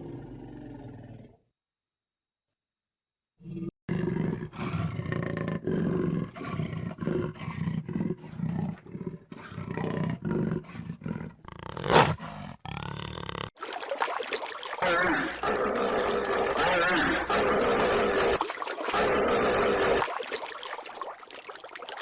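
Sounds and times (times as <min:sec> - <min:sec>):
big cat growling and roaring: 0:00.0 - 0:01.4, 0:03.4 - 0:13.6, 0:14.8 - 0:20.1.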